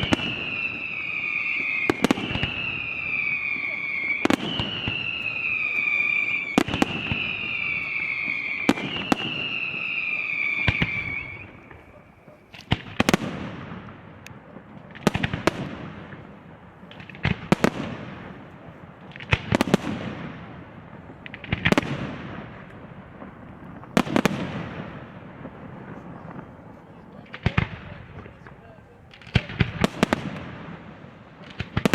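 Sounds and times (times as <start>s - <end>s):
falling firework whistles: 0.0s - 13.5s
firework shell bursts echoing: 0.0s - 26.0s
firework bangs: 0.0s - 31.9s.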